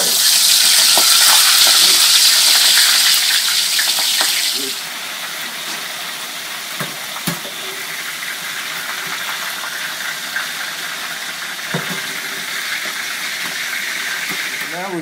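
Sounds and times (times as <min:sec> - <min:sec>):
calamari sizzling in hot oil: 0:00.0 - 0:15.0.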